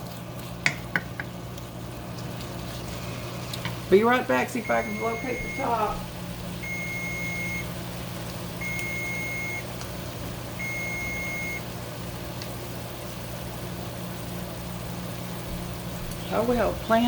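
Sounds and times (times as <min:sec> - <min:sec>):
cooking timer beeping: 0:03.6 - 0:13.5.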